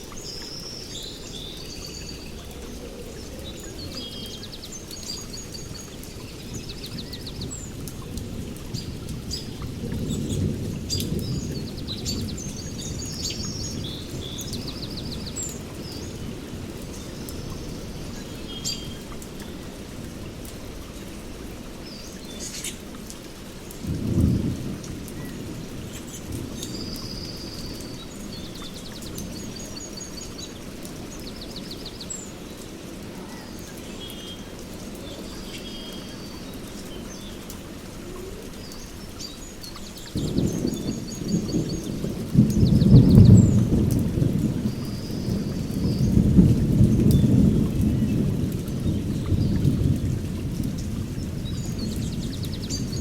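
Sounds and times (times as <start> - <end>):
steady rain: 0.0 - 53.0
birds chirping and trilling: 0.1 - 19.7, 33.4 - 43.9
thunder rumbling: 1.4 - 18.2, 23.8 - 29.6, 40.0 - 53.0.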